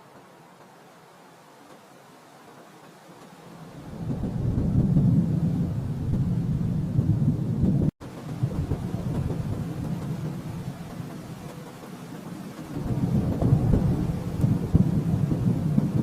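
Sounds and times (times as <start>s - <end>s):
thunder rumbling: 3.6s - 16.0s.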